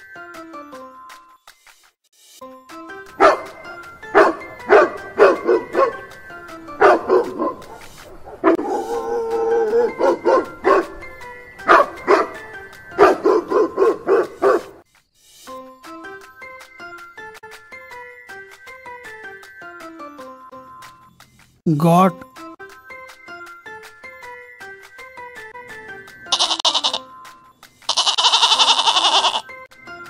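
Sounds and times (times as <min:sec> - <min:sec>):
dog barking: 0:03.2 - 0:06.1, 0:06.8 - 0:11.0, 0:11.7 - 0:12.4, 0:13.0 - 0:14.8.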